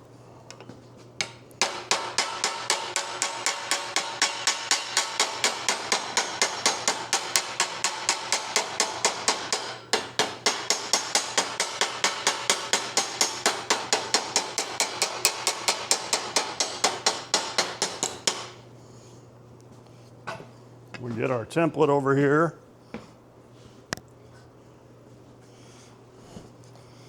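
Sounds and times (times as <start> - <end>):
hammer striking sheet steel: 1.2 - 18.6.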